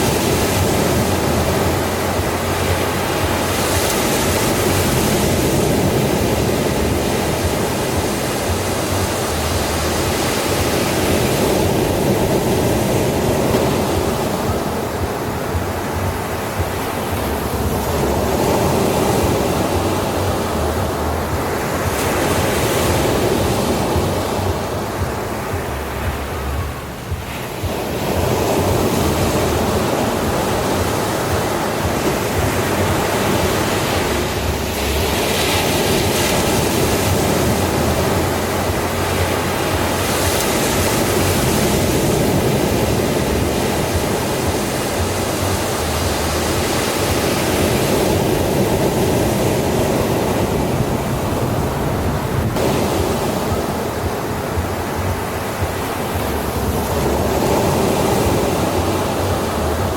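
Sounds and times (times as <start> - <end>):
ocean surf washing: 0.0 - 59.9.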